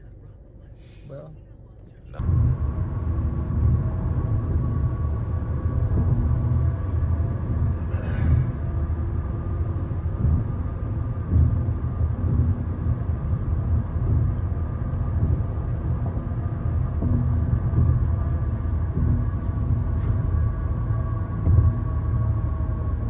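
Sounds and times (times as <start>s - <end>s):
car cabin road and engine rumble: 0.0s - 23.0s.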